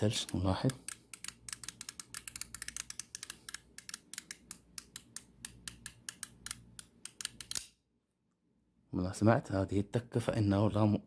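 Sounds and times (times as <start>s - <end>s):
timer gear mechanism clicking: 0.0s - 7.7s.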